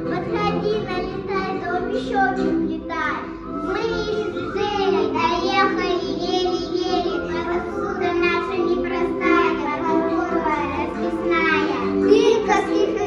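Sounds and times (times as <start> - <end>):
backing music: 0.0 - 13.0
children singing together: 0.0 - 13.0.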